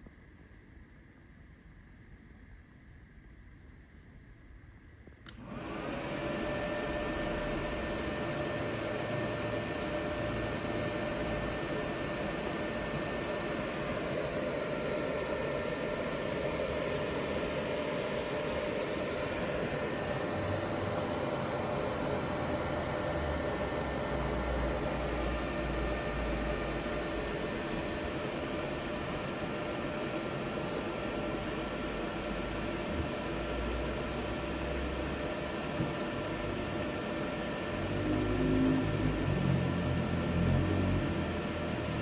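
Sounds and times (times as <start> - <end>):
hum of running machinery: 4.8 - 42.0
high-pitched electrical whine: 5.3 - 32.4, 37.7 - 42.0.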